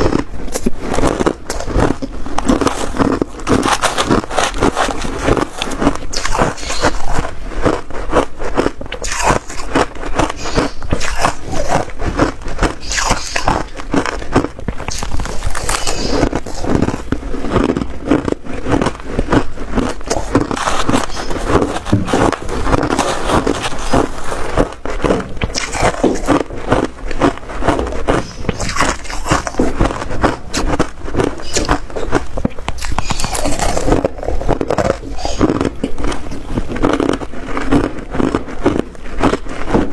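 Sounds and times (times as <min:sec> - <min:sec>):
ice crunching while chewed: 0:00.0 - 0:39.9.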